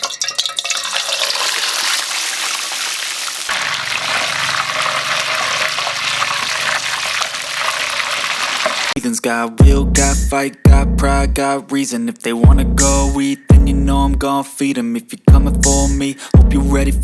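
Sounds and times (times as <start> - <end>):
rushing water: 0.0 - 9.0.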